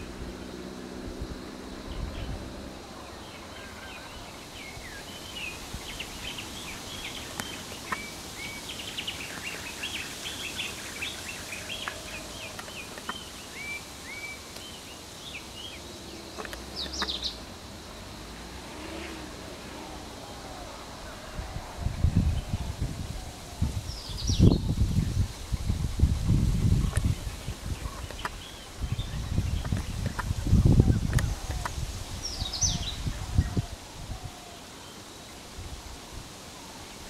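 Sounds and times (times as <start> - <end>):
low engine rumble: 0.0 - 7.3
wild birds chirping: 0.0 - 37.0.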